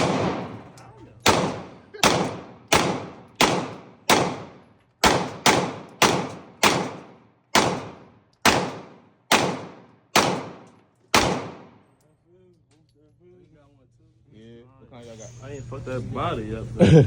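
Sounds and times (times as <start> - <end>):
gunshots with echo: 0.0 - 11.8.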